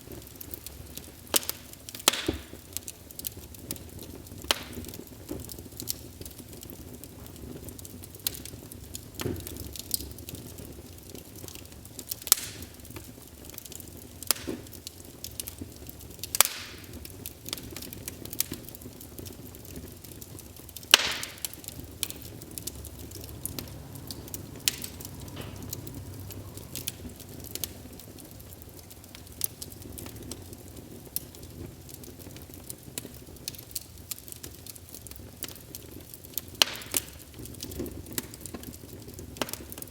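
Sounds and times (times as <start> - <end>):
fire rumbling: 0.0 - 39.9
wood fire crackling and popping: 0.0 - 39.9.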